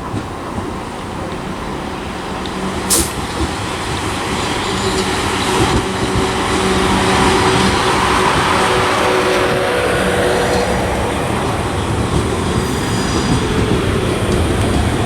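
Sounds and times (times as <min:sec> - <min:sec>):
electric train pulling in: 0:00.0 - 0:15.0
short sharp hiss: 0:02.9 - 0:03.2.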